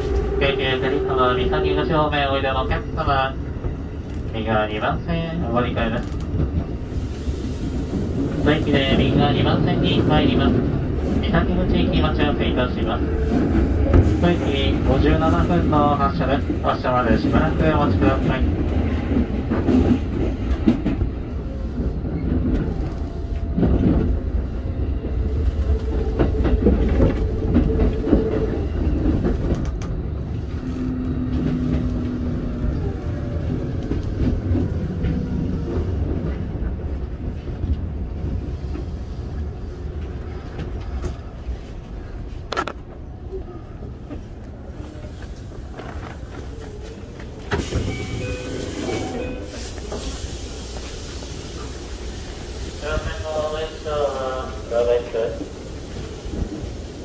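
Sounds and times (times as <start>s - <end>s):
train wheels rumbling on rails: 0.0s - 57.0s
electric train whine: 45.7s - 57.0s
train doors opening with air hiss: 47.2s - 57.0s.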